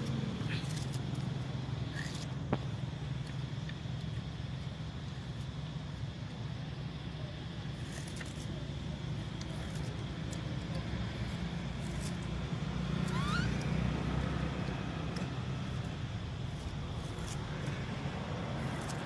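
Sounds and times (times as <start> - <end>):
low engine rumble: 0.0 - 19.0
short rising squeak: 13.0 - 13.8.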